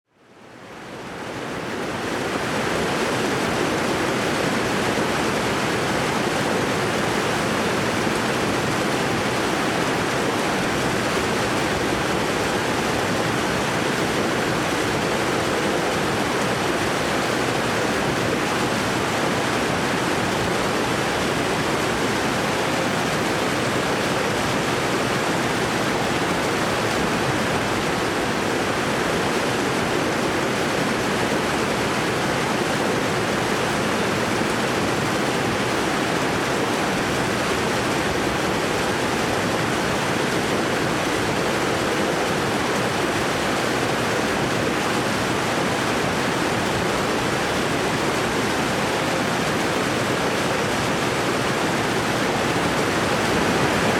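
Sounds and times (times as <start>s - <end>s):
waterfall roaring: 0.2s - 53.9s.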